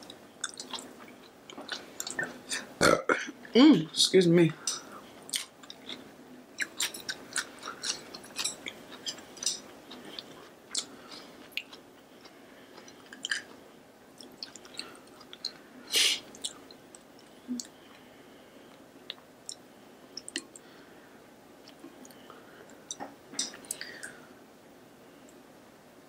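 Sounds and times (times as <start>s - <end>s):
close chewing and mouth sounds: 0.0s - 2.7s, 4.7s - 18.0s, 18.7s - 20.7s.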